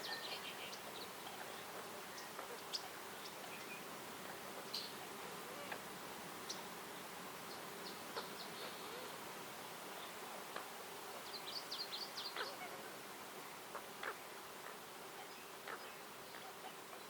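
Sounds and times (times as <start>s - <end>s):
bird chirping: 0.0s - 3.9s
background hiss: 0.0s - 17.0s.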